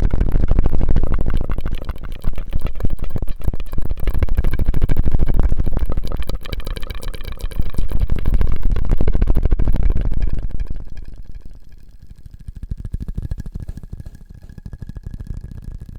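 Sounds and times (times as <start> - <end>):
mouth clicks: 1.0 - 4.8.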